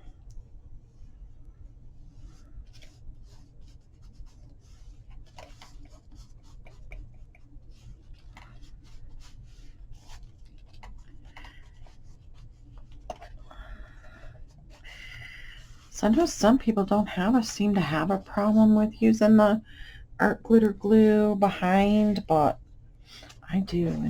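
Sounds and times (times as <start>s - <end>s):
steady low hum: 0.0s - 24.0s
paper rustling and rubbing: 2.2s - 13.5s.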